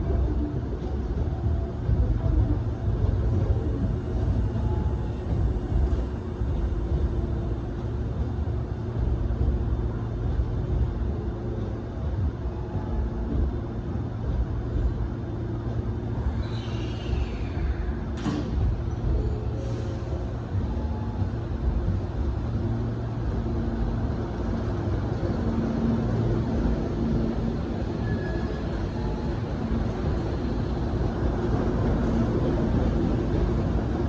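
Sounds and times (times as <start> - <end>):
electric trains rumble and hum: 0.0 - 34.0.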